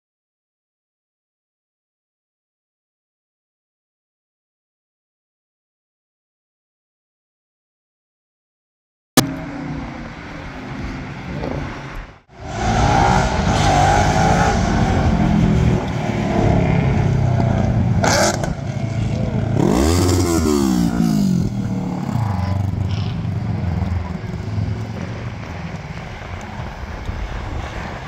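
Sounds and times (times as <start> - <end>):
engines revving loudly: 12.4 - 25.9.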